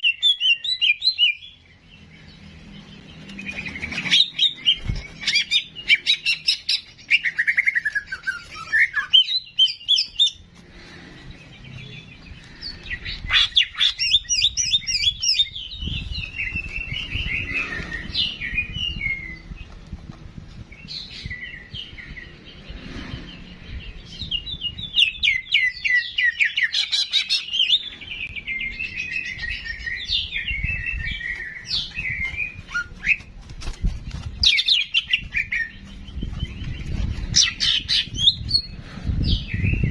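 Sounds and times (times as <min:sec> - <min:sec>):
songbird chirping and whistling: 0:00.0 - 0:01.6, 0:03.4 - 0:10.4, 0:11.7 - 0:19.6.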